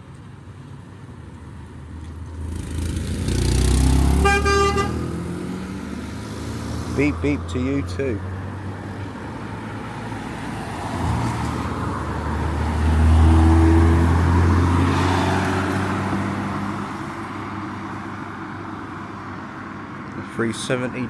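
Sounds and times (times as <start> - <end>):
car driving past: 1.9 - 18.0.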